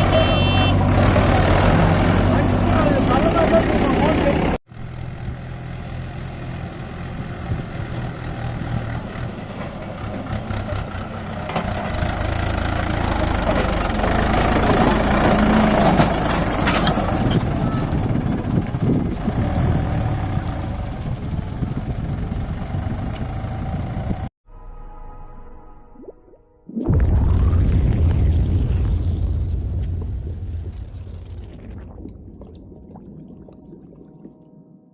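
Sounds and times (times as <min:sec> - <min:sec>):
diesel tractor engine running: 0:00.0 - 0:24.3.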